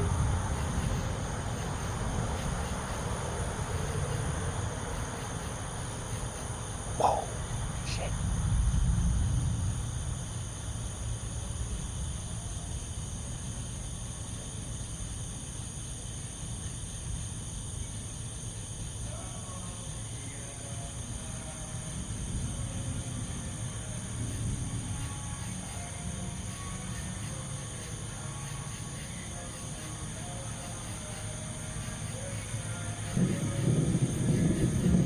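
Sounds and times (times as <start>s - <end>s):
thunder rumbling: 0.0s - 12.4s, 31.5s - 35.0s
insects chirring: 0.0s - 35.0s.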